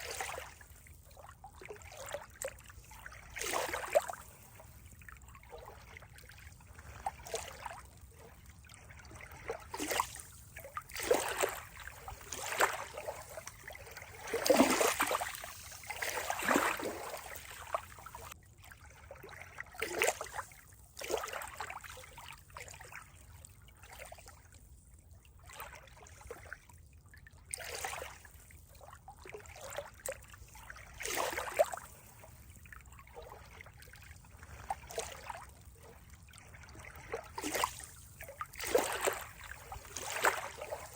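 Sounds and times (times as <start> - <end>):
water trickling and gurgling: 0.0 - 40.9
louder water splashes: 14.2 - 17.6.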